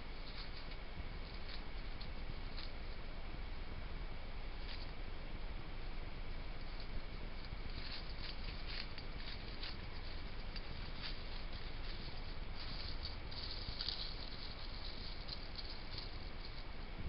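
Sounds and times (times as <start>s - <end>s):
background hiss: 0.0s - 17.0s
faint high whine: 0.0s - 17.0s
hedgehog rustling in dry material: 0.0s - 17.0s.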